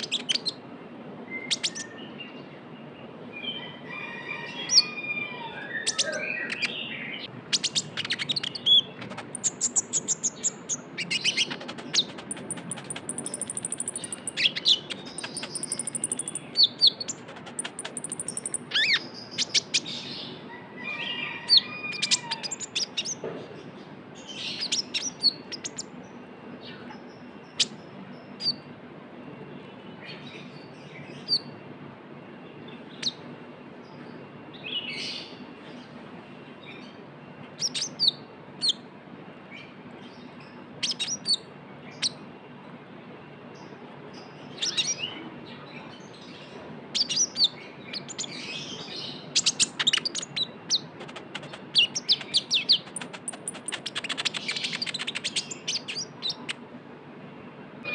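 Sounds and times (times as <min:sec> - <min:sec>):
sunbird chattering song: 0:00.0 - 0:00.6, 0:01.4 - 0:02.4, 0:04.5 - 0:20.4, 0:21.1 - 0:28.7, 0:37.6 - 0:38.8, 0:39.6 - 0:42.2, 0:43.6 - 0:56.6.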